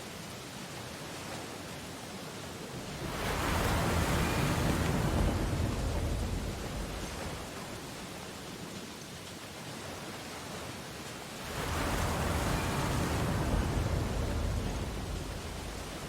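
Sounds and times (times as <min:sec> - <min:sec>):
wave breaking and washing in: 0:00.8 - 0:08.6, 0:09.6 - 0:16.0
ocean surf hiss: 0:02.5 - 0:08.3, 0:11.2 - 0:16.0.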